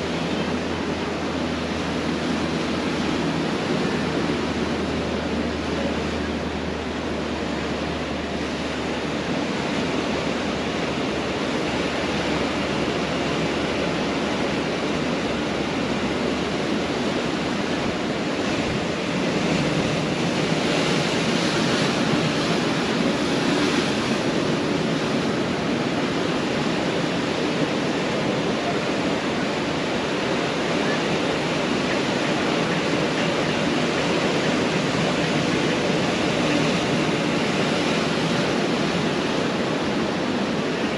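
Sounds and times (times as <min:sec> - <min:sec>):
surf washing onto beach: 0:00.0 - 0:40.9.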